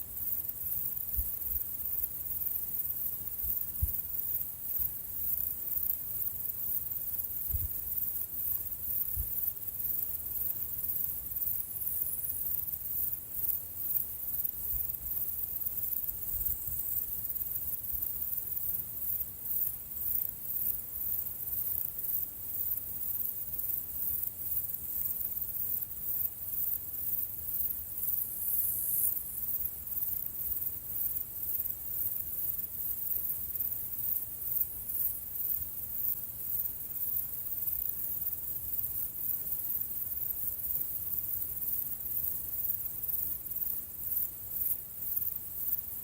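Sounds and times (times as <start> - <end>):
insects chirring: 0.0 - 46.0.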